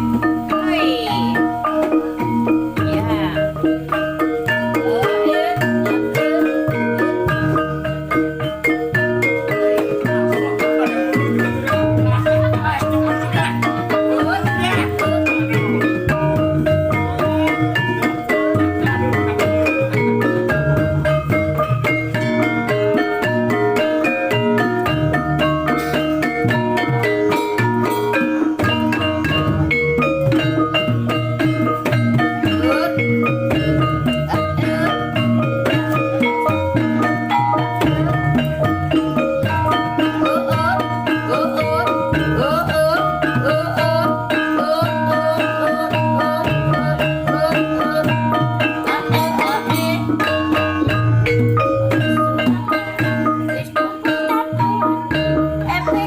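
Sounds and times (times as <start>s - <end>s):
drumming: 0.0s - 56.0s
struck metallophones: 0.0s - 56.0s.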